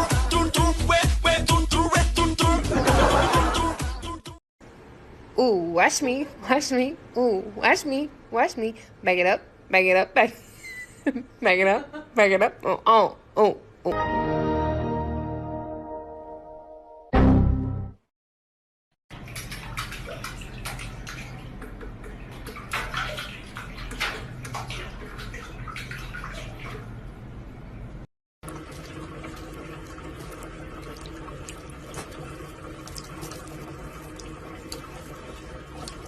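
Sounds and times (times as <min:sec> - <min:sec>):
water splashing and dripping: 0:19.1 - 0:27.2, 0:28.4 - 0:36.0.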